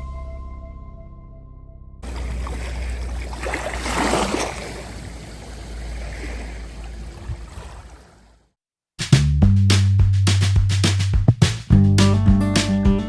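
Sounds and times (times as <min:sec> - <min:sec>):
rushing water: 0:02.0 - 0:08.4.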